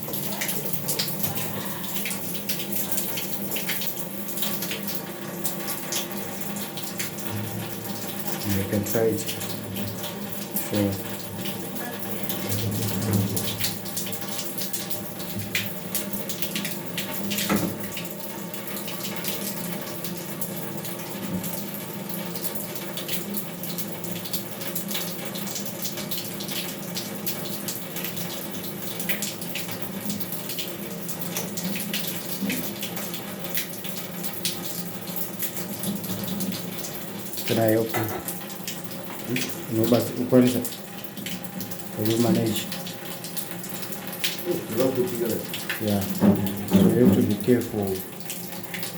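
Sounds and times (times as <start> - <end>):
tap water running and splashing: 0.0 - 48.9
knock: 46.1 - 47.3.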